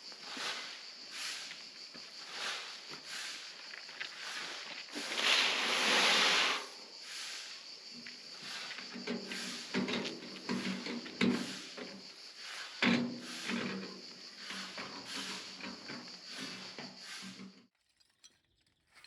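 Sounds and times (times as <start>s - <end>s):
long scrape: 4.2s - 7.6s.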